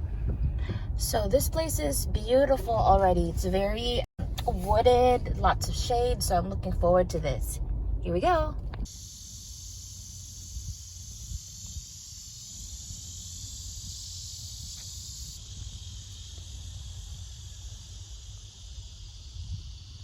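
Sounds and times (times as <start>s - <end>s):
low rumble: 0.0s - 8.9s
insect chorus buzzing: 8.9s - 20.0s.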